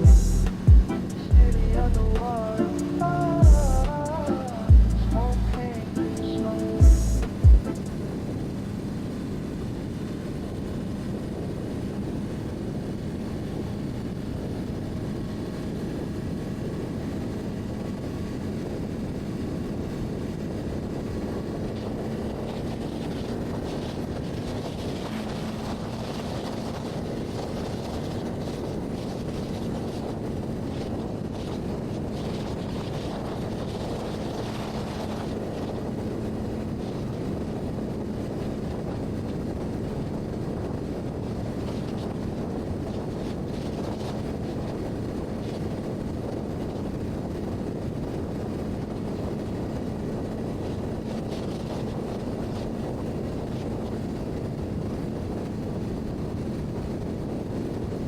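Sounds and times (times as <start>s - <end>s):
motorcycle engine cruising: 0.0s - 57.0s
wind rushing over microphone: 0.0s - 58.0s.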